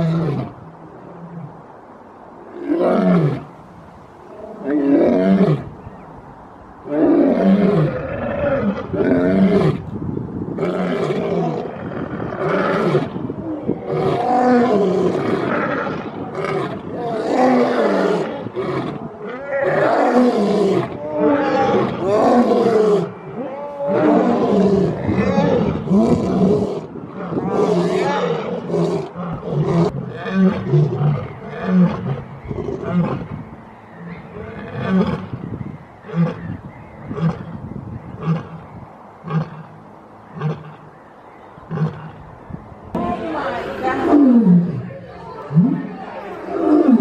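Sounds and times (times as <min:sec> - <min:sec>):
lion roaring: 0:10.6 - 0:33.3, 0:43.7 - 0:47.0.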